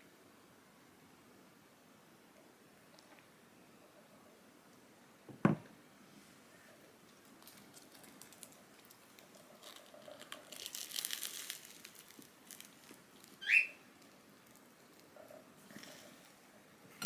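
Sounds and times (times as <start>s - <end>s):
crinkling rustle with clicks: 7.0s - 16.0s.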